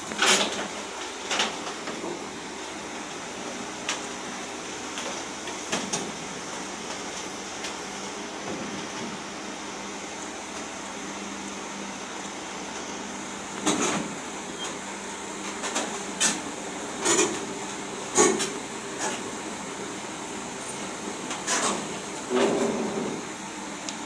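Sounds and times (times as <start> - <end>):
excavator engine humming: 0.0 - 24.0.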